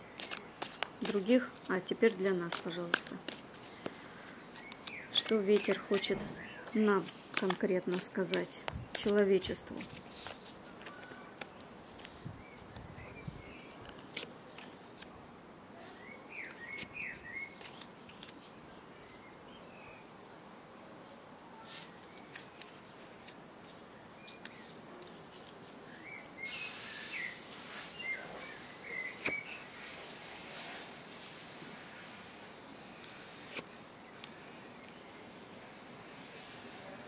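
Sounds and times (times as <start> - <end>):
small birds twittering: 0.0 - 14.7, 15.7 - 31.3
steady hiss: 26.4 - 37.0.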